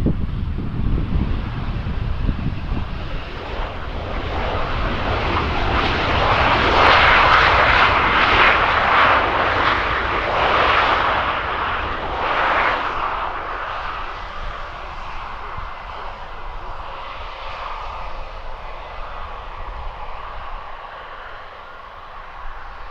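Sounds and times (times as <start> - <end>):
jet engines roaring: 0.0 - 22.9.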